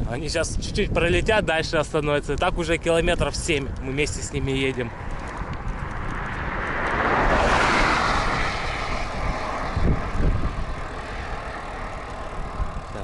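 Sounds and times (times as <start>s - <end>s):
wind rumble on microphone: 0.0s - 13.0s
vehicle passing by: 4.5s - 13.0s.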